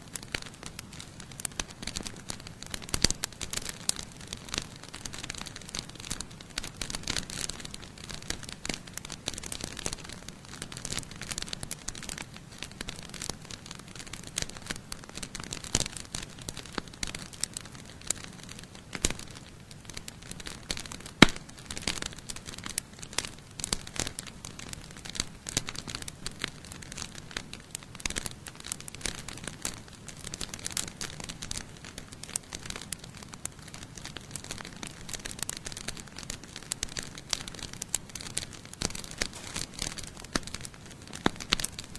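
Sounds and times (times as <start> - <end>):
campfire crackling: 0.0 - 41.9
loud sharp pop of fire: 21.0 - 22.0.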